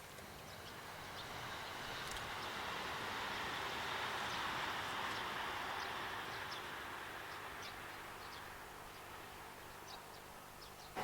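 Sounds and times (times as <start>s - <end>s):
small birds chirping: 0.0s - 2.7s, 4.2s - 11.0s
train running past: 0.7s - 9.5s.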